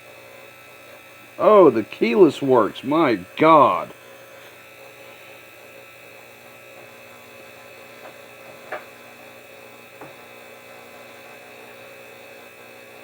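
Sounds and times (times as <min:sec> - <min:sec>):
electrical hum: 0:01.4 - 0:04.1.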